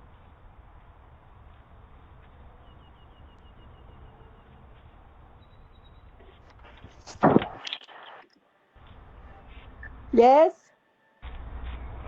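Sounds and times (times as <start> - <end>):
faint outdoor background noise: 0.0 - 12.0
bird chirping: 2.0 - 8.3.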